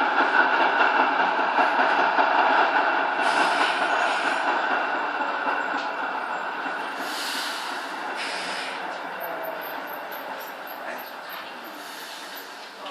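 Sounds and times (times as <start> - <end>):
tram wheels running on rails: 0.0 - 12.9
short hisses: 7.0 - 8.9, 11.8 - 12.6.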